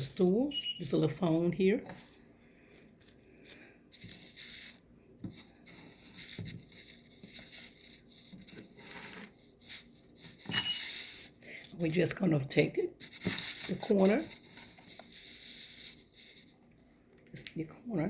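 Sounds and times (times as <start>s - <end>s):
craft materials rustling and scraping: 13.0s - 16.6s.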